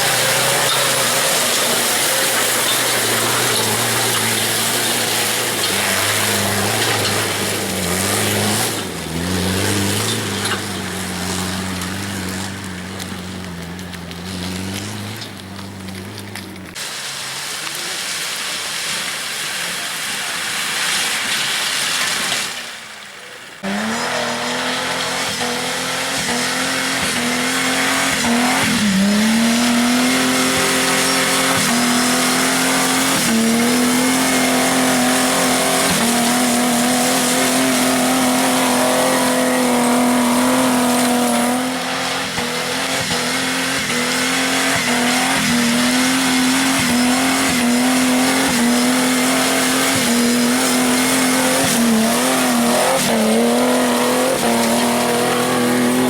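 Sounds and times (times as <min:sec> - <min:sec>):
engine at high revs: 0:00.0 - 0:16.8, 0:23.6 - 0:56.0.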